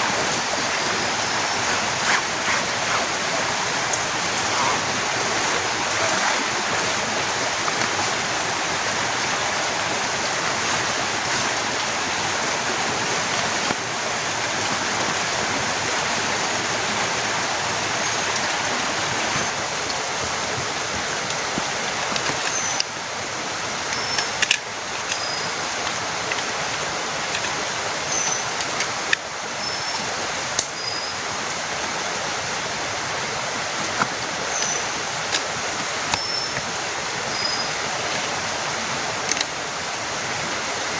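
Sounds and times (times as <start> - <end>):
heavy rain: 0.0 - 21.1.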